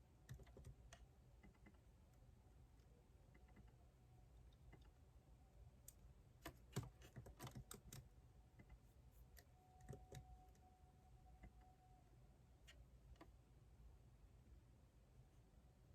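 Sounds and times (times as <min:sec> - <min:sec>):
faint keyboard typing: 0:00.0 - 0:05.1, 0:05.8 - 0:11.8, 0:12.6 - 0:13.5.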